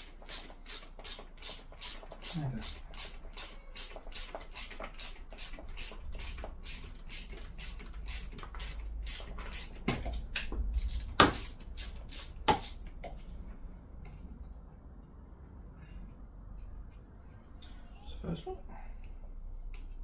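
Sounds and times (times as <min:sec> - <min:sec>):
ratchet spanner clicking: 0:00.0 - 0:12.8.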